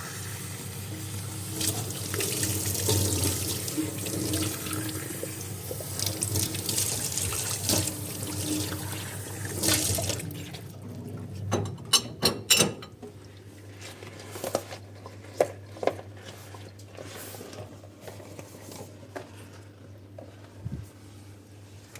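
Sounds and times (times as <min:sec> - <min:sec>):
tap running water into sink: 0:00.8 - 0:10.3
dishes clinking and knocking: 0:11.5 - 0:13.1.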